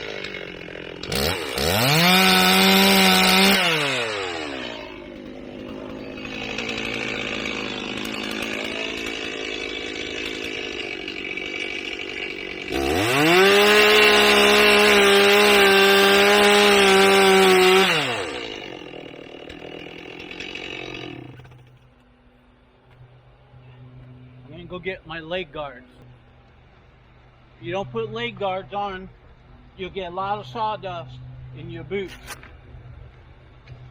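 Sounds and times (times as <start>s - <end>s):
chainsaw engine revving: 0.0s - 21.8s.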